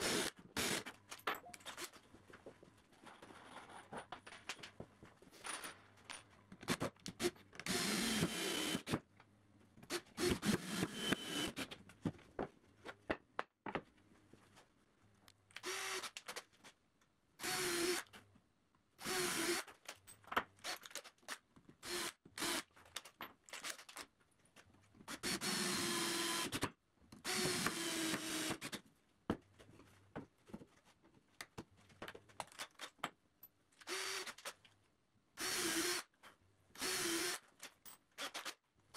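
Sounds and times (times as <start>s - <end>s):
clicks and handling of wooden parts: 0.8s - 7.7s, 11.6s - 17.2s, 19.6s - 21.8s, 22.7s - 25.1s, 28.7s - 35.0s, 37.5s - 38.9s.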